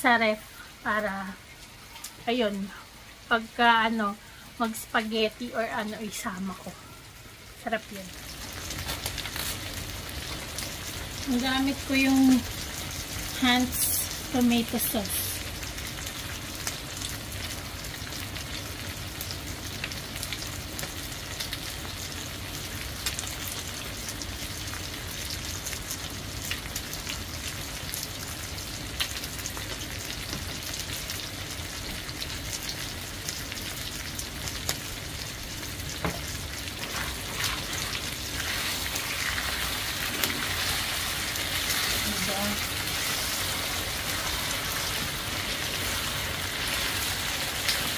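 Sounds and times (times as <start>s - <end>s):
meat sizzling in a pan: 0.2s - 47.9s
spatula stirring a pan: 36.0s - 47.9s.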